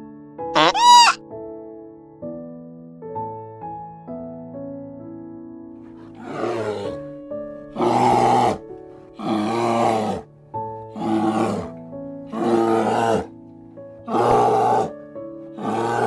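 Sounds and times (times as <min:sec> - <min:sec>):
soft piano music: 0:00.0 - 0:00.5, 0:01.2 - 0:09.3, 0:10.1 - 0:15.6
bear growling: 0:05.9 - 0:10.3, 0:10.9 - 0:13.4, 0:14.0 - 0:16.0.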